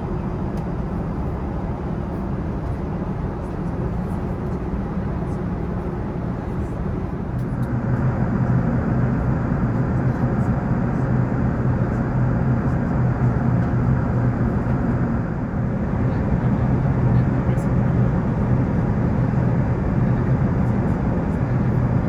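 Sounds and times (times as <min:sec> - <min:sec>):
airflow rush and jet engine: 0:00.0 - 0:22.0
low hum: 0:07.6 - 0:21.0.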